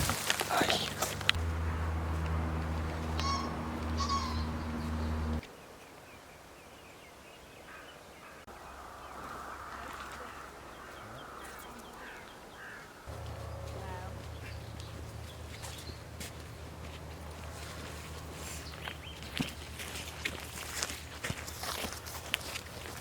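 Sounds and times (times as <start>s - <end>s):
steady low hum: 0.6s - 5.4s, 13.1s - 21.2s
short bird calls: 3.0s - 5.4s.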